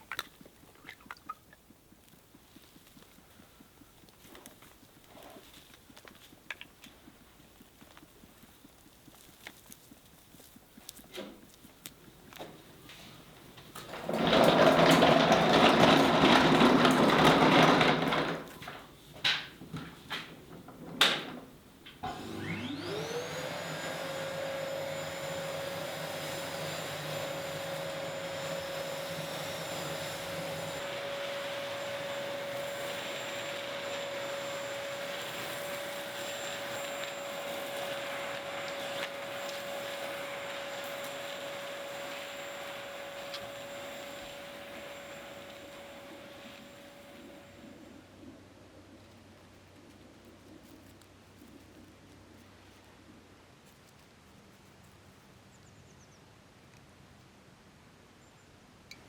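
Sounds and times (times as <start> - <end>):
electric motor whine: 22.0 - 48.1.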